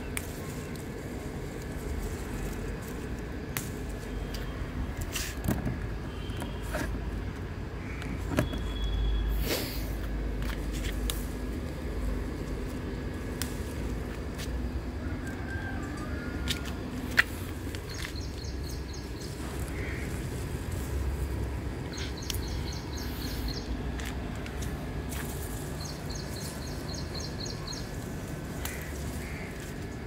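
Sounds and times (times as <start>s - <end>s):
bird chirping: 17.8s - 19.9s, 21.9s - 23.8s, 25.8s - 28.0s.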